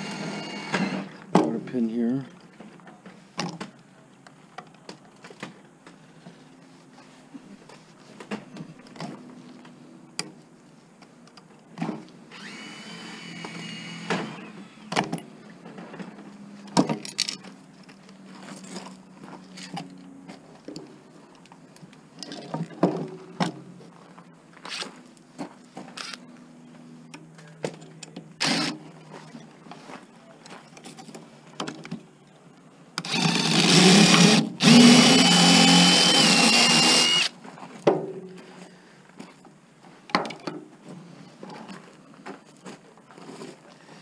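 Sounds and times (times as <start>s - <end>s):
high-pitched squeal: 0.0s - 1.1s.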